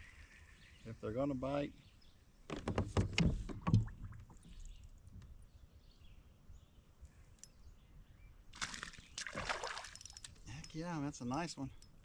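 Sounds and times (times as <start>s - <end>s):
fish splashing at surface: 8.6s - 10.1s.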